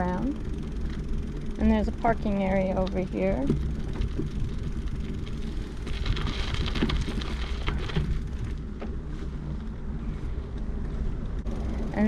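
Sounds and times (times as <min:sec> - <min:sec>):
bicycle clicks and rattles: 0:00.0 - 0:09.8
bicycle rolling rumble: 0:00.0 - 0:12.0.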